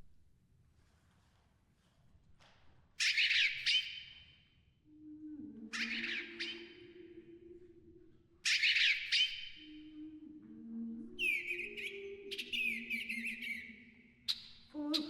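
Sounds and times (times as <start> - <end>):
recorded bird calls: 3.0 - 4.3, 4.9 - 7.8, 8.4 - 15.0
low sustained tones: 4.8 - 15.0.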